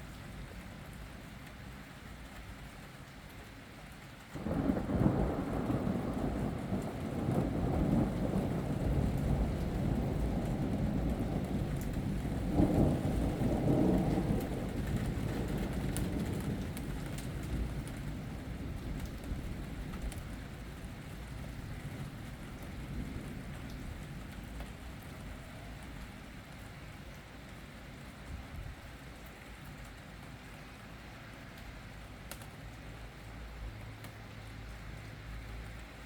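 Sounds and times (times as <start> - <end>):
steady rain: 0.0 - 36.0
thunder rumbling: 4.4 - 20.2.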